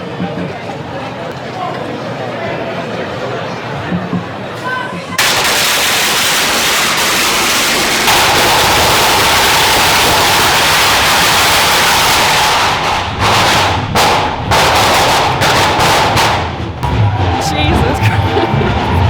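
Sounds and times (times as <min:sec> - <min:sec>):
firecrackers crackling and banging: 0:05.2 - 0:19.0.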